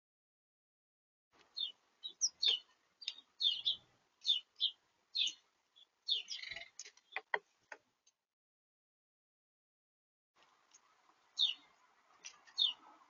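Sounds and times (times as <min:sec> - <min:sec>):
small birds chirping: 0:01.4 - 0:08.2, 0:10.4 - 0:13.0.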